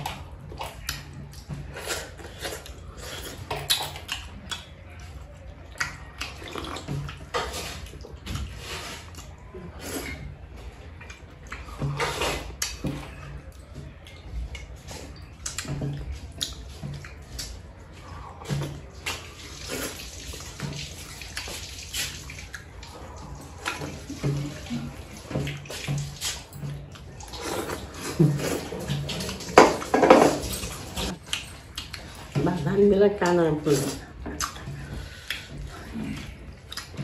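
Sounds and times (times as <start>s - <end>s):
water splashing and pouring: 18.5s - 32.8s.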